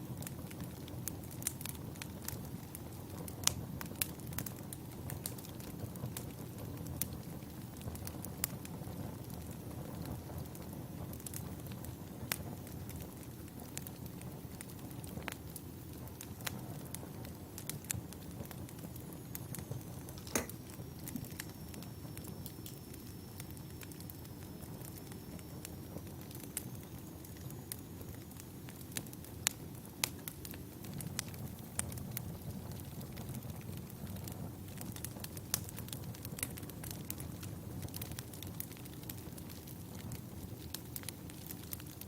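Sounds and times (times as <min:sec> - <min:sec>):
wood fire crackling: 0:00.0 - 0:42.0.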